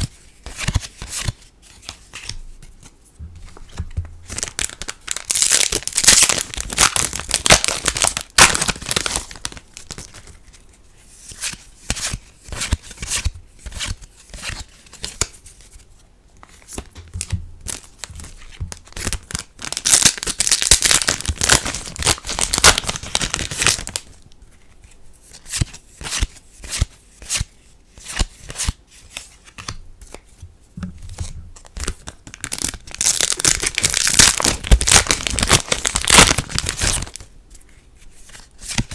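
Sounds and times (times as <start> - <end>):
foil packs tearing and crinkling: 4.3 - 10.0, 19.0 - 24.0, 32.4 - 37.2.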